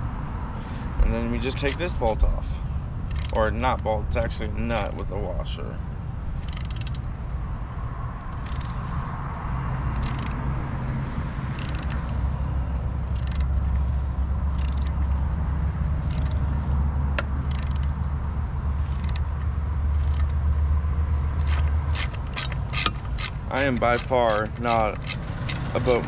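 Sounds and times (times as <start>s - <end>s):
steady low hum: 0.0s - 26.0s
ratchet pawl clicking: 3.0s - 5.1s, 6.3s - 7.4s, 8.2s - 10.6s, 11.5s - 15.3s, 16.0s - 18.1s, 18.7s - 20.7s, 21.3s - 26.0s.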